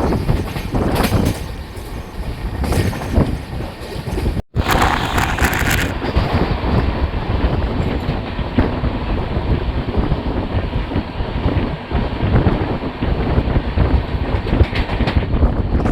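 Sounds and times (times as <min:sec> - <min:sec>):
wheels clicking on rails: 0:00.0 - 0:06.9
train wheels rumbling on rails: 0:00.0 - 0:15.9
wind buffeting microphone: 0:00.0 - 0:15.9.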